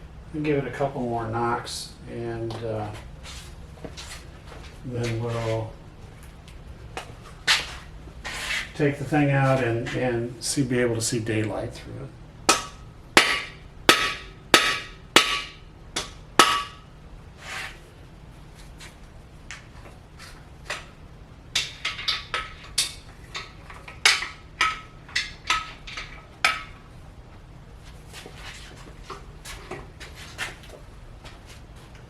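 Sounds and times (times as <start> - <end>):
hammer striking metal: 12.5 - 16.9.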